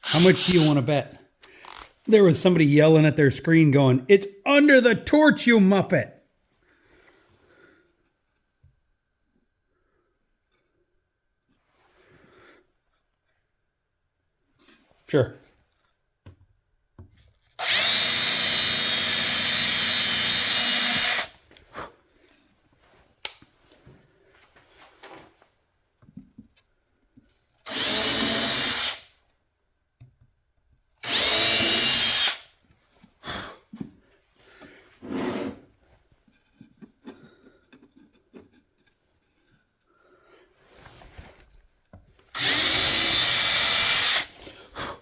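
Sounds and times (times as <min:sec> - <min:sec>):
power drill boring into wood: 0:00.0 - 0:00.8, 0:01.6 - 0:01.9, 0:17.6 - 0:21.4, 0:27.7 - 0:29.1, 0:31.0 - 0:32.5, 0:42.4 - 0:44.4.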